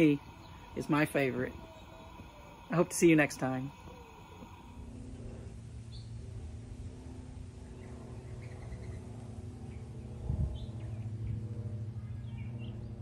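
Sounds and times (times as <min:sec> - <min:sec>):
small birds chirping faintly: 0:00.0 - 0:06.2
steady low hum: 0:00.0 - 0:13.0.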